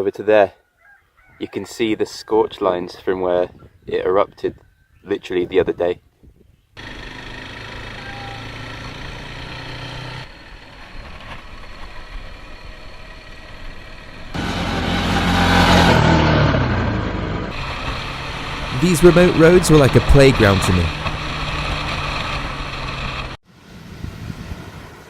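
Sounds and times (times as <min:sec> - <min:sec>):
motorbike engine running: 0:06.8 - 0:15.8
wind rushing: 0:23.6 - 0:25.0.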